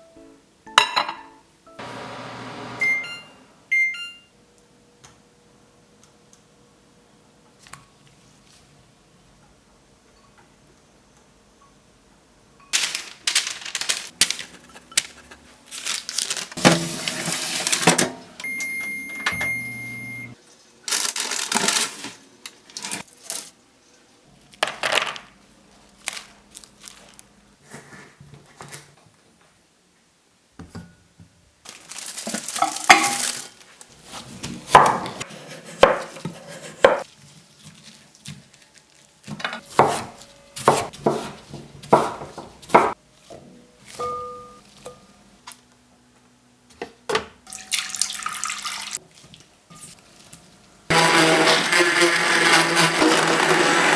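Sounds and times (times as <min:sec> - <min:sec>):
electronic tone with low hum: 0:18.4 - 0:20.4
utensils clinking against pots: 0:32.0 - 0:33.6, 0:47.5 - 0:48.6.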